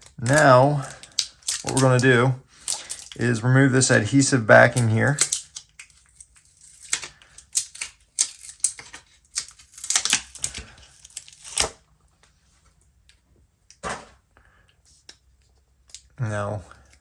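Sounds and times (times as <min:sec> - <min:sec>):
adhesive film being peeled off: 0:00.1 - 0:03.2, 0:03.8 - 0:11.8.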